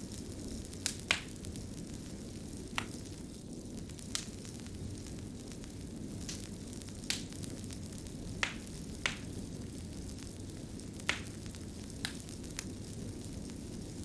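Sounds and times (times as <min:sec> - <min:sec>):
fire crackling: 0:00.0 - 0:14.0
sharp pops: 0:08.4 - 0:09.3, 0:11.1 - 0:11.4.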